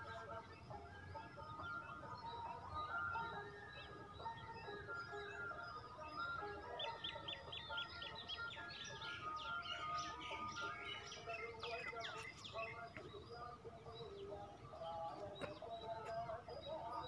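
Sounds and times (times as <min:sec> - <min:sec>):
birds chirping and whistling: 0:00.0 - 0:17.0
soft background melody: 0:00.0 - 0:17.0.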